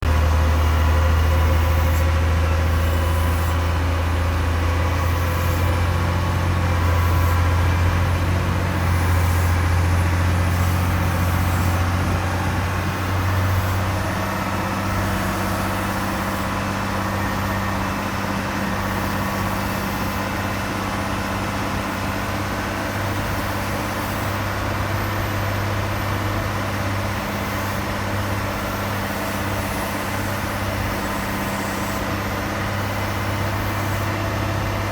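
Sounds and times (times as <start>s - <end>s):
deep aircraft mechanical drone: 0.0s - 34.9s.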